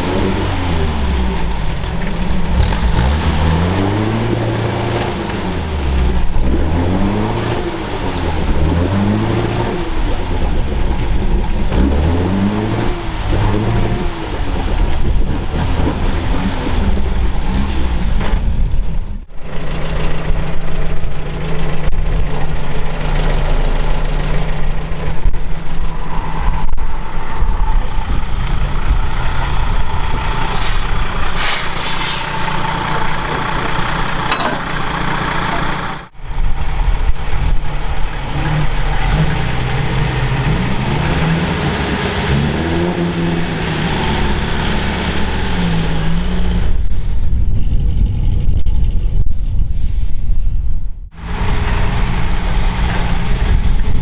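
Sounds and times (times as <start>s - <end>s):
diesel truck engine running: 0.0s - 47.1s, 51.1s - 54.0s
air hiss: 30.5s - 32.6s.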